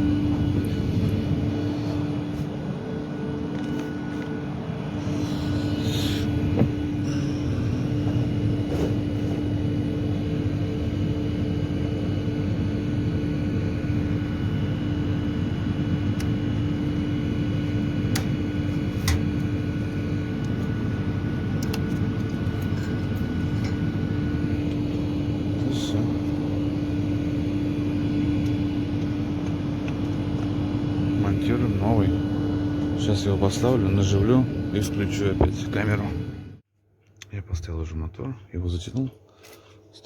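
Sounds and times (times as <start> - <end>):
machine hum: 0.0 - 36.7.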